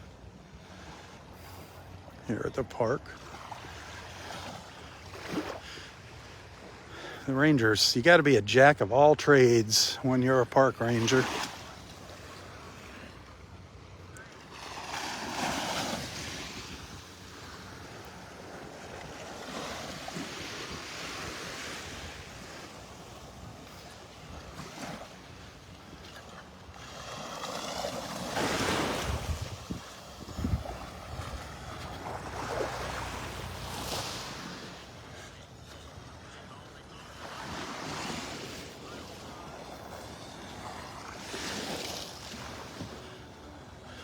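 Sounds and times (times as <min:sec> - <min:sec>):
surf washing onto beach: 0:07.3 - 0:13.2, 0:14.4 - 0:35.8, 0:36.4 - 0:44.0
wind buffeting microphone: 0:28.8 - 0:32.0.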